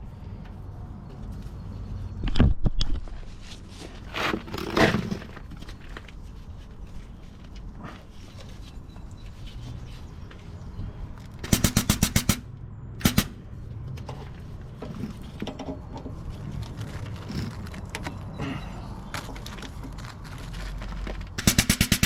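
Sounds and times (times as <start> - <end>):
handling noise: 13.2 - 21.7.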